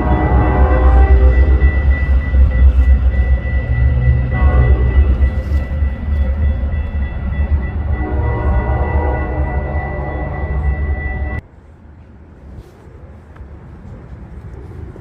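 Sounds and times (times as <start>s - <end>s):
thin steady high tone: 0.0s - 11.4s
train rumbling by: 0.0s - 15.0s.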